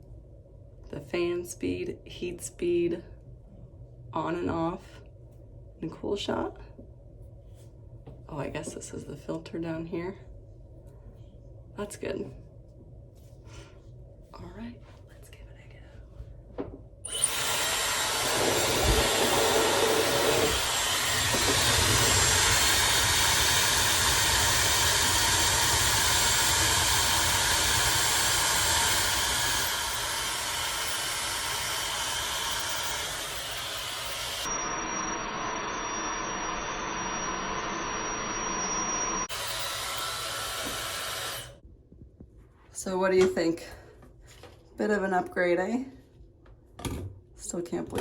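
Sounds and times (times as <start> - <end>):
hair dryer running: 17.1 - 41.6.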